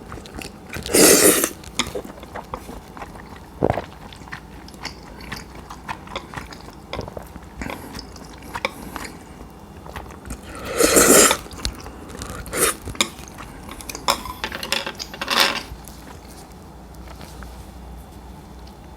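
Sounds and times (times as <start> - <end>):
utensils clicking against dishes: 12.6 - 15.7.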